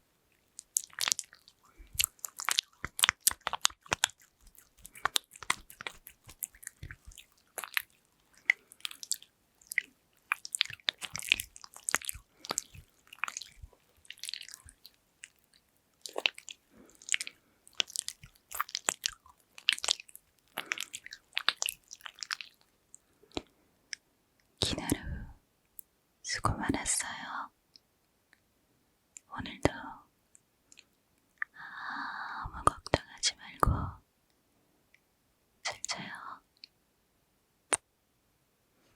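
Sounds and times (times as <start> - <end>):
hands rubbing sticky gel: 0.4 - 22.6.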